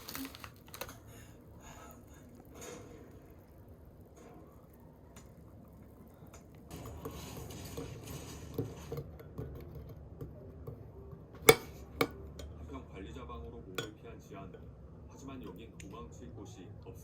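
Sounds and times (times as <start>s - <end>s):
dishes and cutlery clinking: 13.8s - 14.0s.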